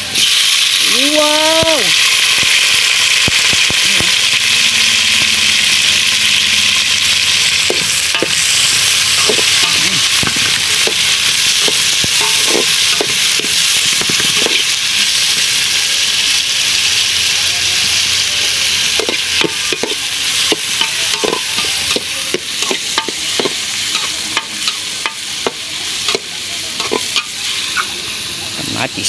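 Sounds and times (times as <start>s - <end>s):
vegetables sizzling in oil: 0.0s - 29.0s
metal spatula scraping a pot: 7.7s - 14.8s.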